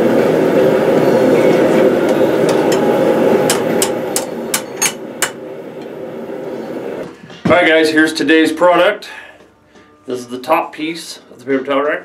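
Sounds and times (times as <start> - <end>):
forge roaring: 0.0 - 7.0
hammer striking steel on anvil: 1.4 - 5.4.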